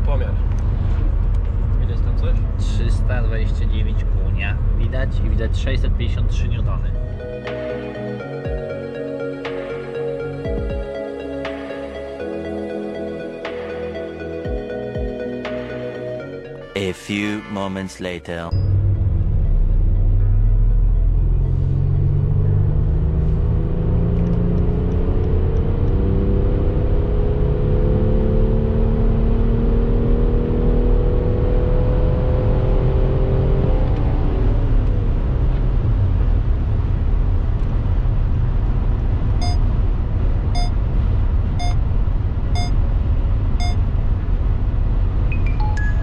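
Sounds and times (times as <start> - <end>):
wind and tyre noise: 0.0 - 7.0, 18.6 - 46.0
diesel engine accelerating: 18.5 - 45.3
short beeps: 40.6 - 40.8, 41.6 - 41.8, 42.6 - 42.8, 43.6 - 43.8.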